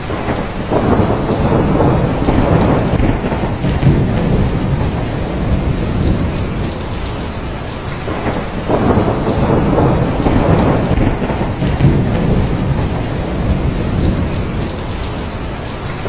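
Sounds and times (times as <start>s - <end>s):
heavy rain: 0.0s - 16.0s
rolling thunder: 0.0s - 16.0s.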